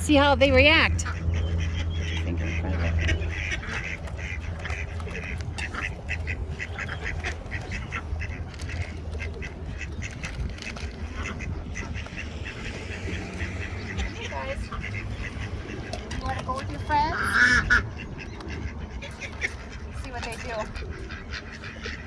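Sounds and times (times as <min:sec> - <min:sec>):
low hum: 0:00.0 - 0:16.9
ducks quacking: 0:00.0 - 0:22.0.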